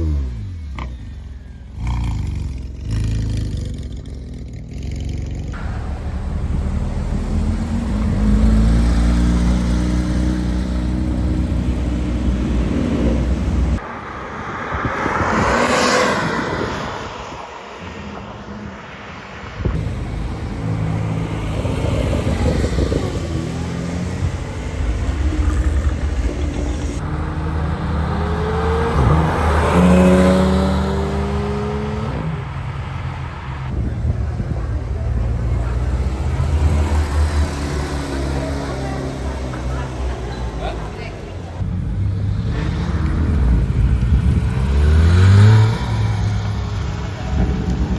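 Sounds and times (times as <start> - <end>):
sports car engine running: 0.0 - 8.5
engine accelerating: 0.0 - 13.8, 19.6 - 47.9
car passing close: 2.4 - 47.9.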